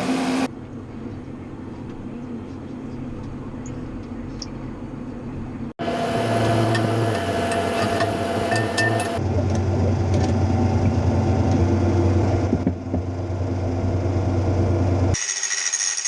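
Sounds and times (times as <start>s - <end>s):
tractor engine running: 0.0s - 15.2s.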